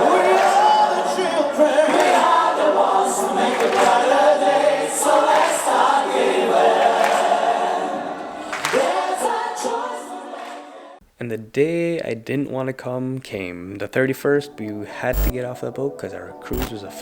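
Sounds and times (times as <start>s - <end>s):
choir singing sustained chords: 0.0s - 11.0s.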